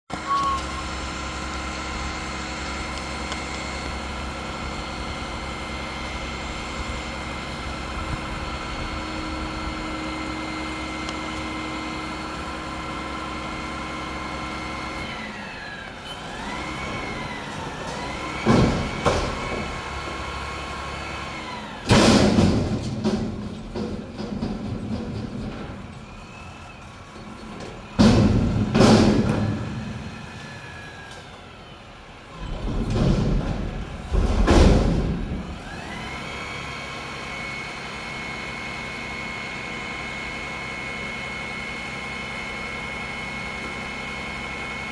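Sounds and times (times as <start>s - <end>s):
garbage truck engine running: 0.1s - 44.9s.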